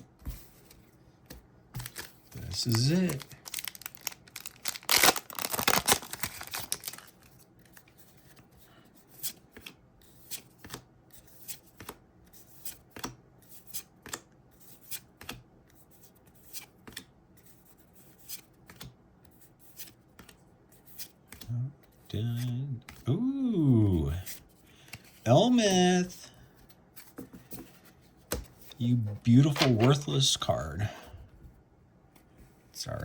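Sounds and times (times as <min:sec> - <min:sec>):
foil wrapper crinkling: 0:01.8 - 0:07.3.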